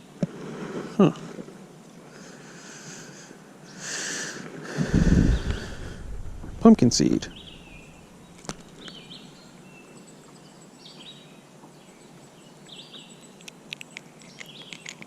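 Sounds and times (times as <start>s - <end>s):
steady background hiss: 0.0s - 14.3s
bird calling: 4.8s - 9.5s.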